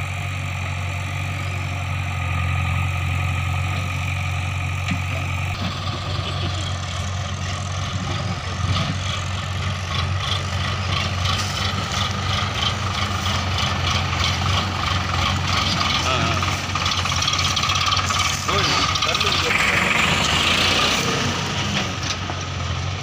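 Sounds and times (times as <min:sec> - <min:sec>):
diesel machinery engine hum: 0:00.0 - 0:23.0
regular mechanical clatter: 0:04.9 - 0:22.5.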